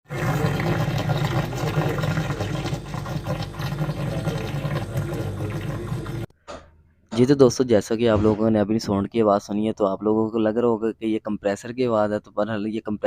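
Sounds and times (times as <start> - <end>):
continuous rushing inside fridge: 0.0 - 6.3
refrigerator humming: 0.1 - 6.3.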